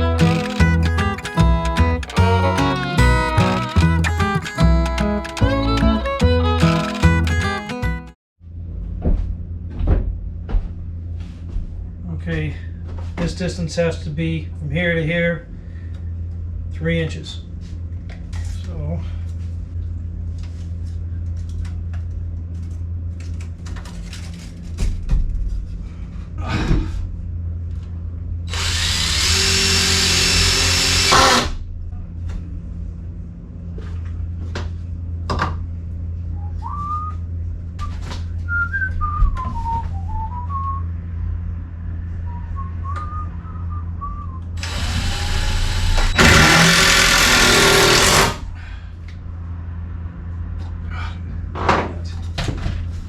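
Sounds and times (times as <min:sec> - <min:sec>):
power tool running: 0:00.0 - 0:08.1, 0:28.5 - 0:31.5, 0:44.6 - 0:48.4.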